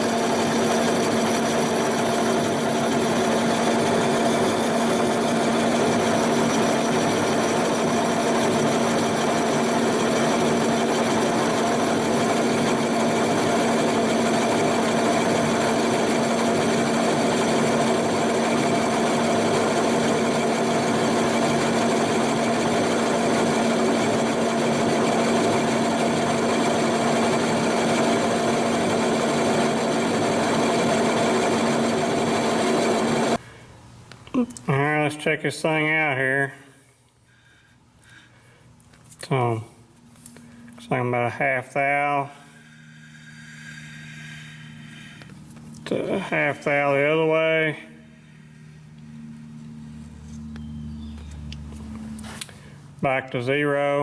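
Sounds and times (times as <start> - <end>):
metalworking machine running: 0.0 - 33.4.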